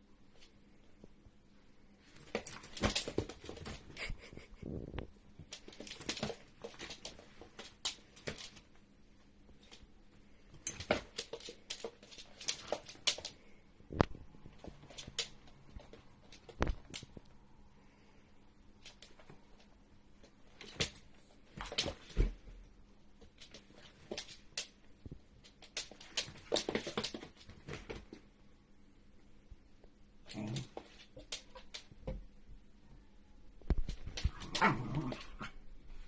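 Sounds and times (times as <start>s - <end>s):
pets play-fighting scuffles: 2.1s - 4.1s, 5.4s - 8.7s, 25.4s - 28.2s.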